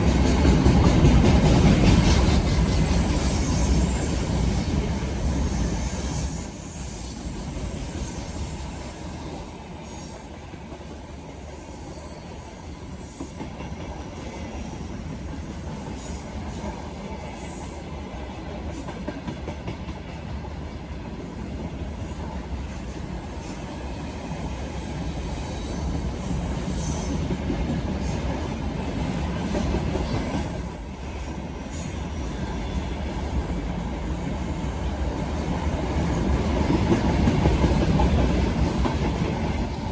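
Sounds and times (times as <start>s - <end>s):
train wagons rumbling on rails: 0.0s - 39.9s.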